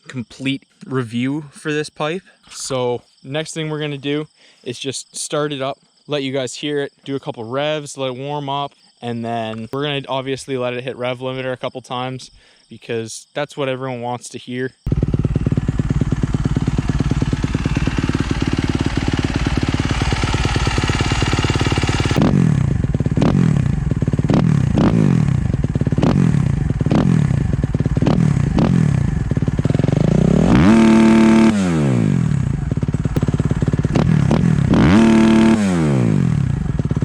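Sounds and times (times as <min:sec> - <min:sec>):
motorcycle engine revving: 0:14.9 - 0:37.0.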